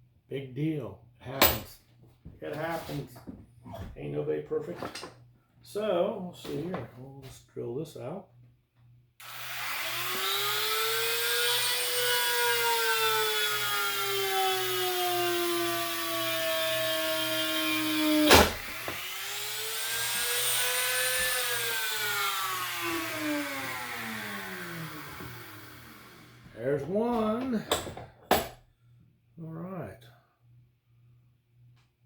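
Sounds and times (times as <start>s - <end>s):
electric drill boring into wood: 9.2s - 26.5s.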